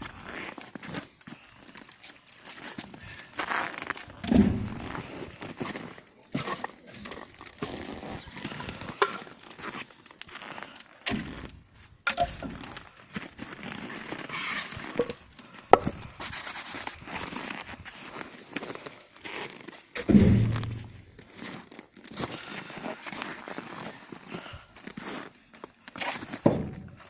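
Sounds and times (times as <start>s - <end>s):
firewood crunching and crackling: 0.0s - 27.0s
wood knocks: 4.2s - 5.0s, 15.0s - 16.0s.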